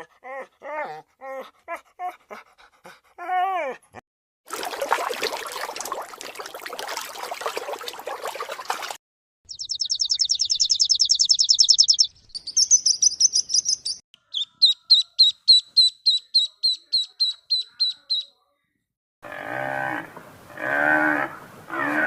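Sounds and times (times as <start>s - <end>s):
small bird trilling: 9.5s - 18.3s.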